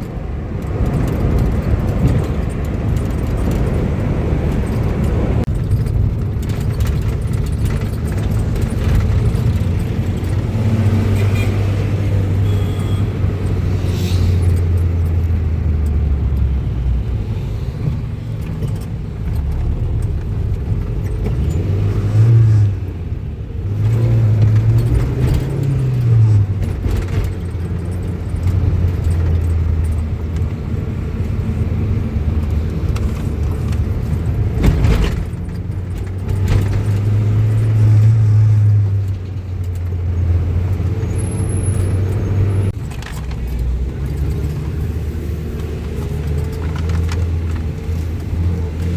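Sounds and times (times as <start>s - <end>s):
vehicle engine humming: 0.0s - 48.9s.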